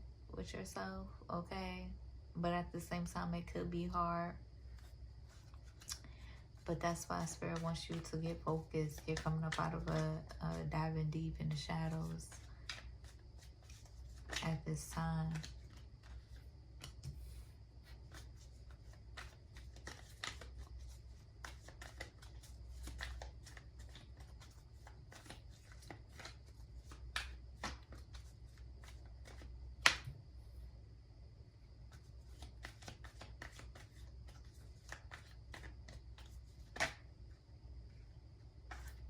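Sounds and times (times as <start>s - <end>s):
cards being shuffled: 4.7s - 10.8s, 11.4s - 30.1s, 31.9s - 37.1s, 38.7s - 39.0s
card snap: 29.8s - 30.1s.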